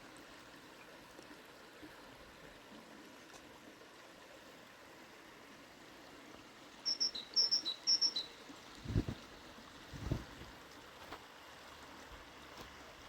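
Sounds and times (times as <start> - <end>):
faint outdoor hiss: 0.0 - 13.0
small bird chirping: 6.8 - 9.2.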